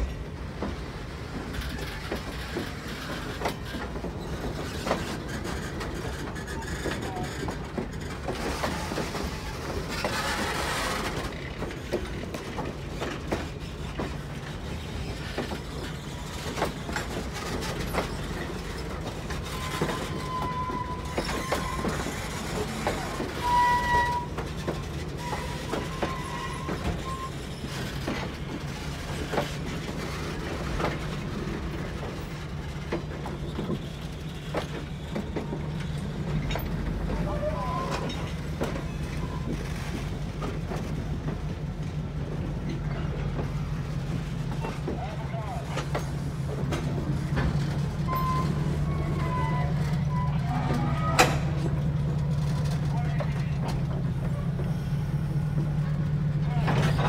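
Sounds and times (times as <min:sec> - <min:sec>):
train rumbling: 0:00.0 - 0:57.0
wheels clicking over rail joints: 0:00.0 - 0:57.0
high wheel squeals: 0:17.8 - 0:28.2, 0:33.3 - 0:40.0, 0:48.0 - 0:51.8.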